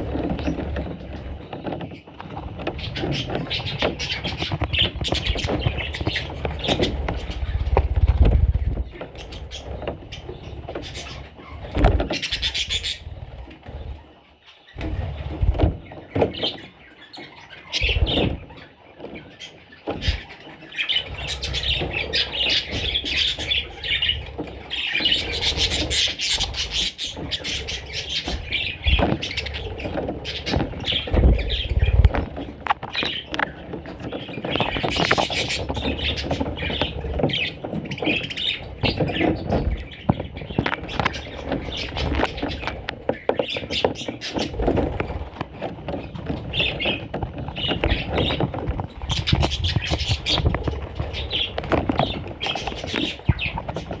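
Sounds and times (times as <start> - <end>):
budgerigars chirping: 0.0 - 54.0
low bumps: 21.0 - 54.0.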